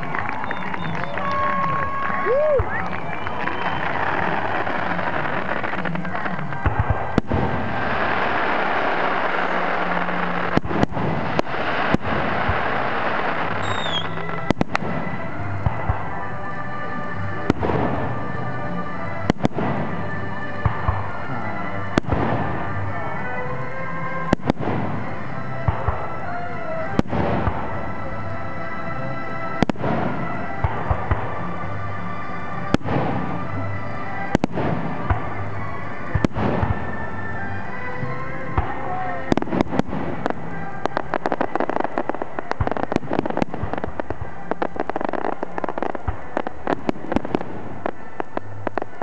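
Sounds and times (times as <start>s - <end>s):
fireworks crackle: 0.0s - 49.0s
falling firework whistle: 0.1s - 5.0s, 11.1s - 15.1s.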